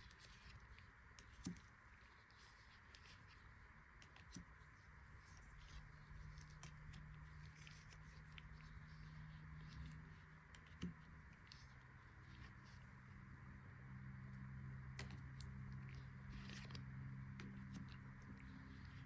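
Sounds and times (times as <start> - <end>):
low hum: 5.4 - 19.0.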